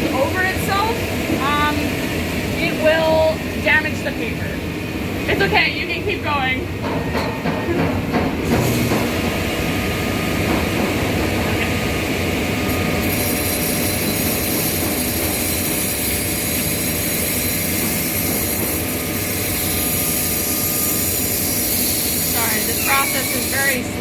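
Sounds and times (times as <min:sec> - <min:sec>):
machinery humming and rushing: 0:06.7 - 0:24.0.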